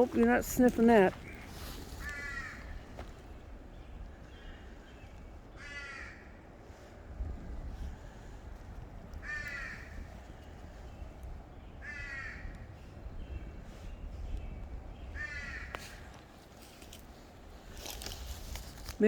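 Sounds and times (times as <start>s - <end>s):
crow cawing: 2.0s - 2.9s, 5.6s - 6.4s, 9.2s - 10.1s, 11.8s - 12.6s, 15.2s - 15.8s.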